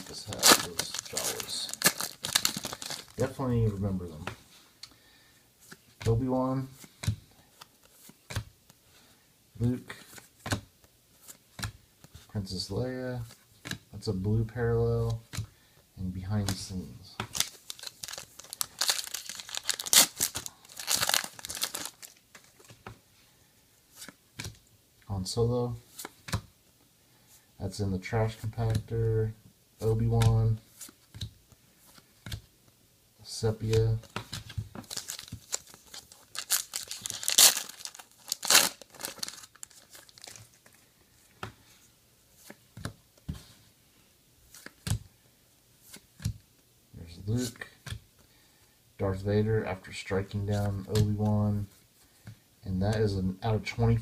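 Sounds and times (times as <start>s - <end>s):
wrapper tearing and crinkling: 0.0s - 3.2s, 17.3s - 22.6s, 34.8s - 40.6s.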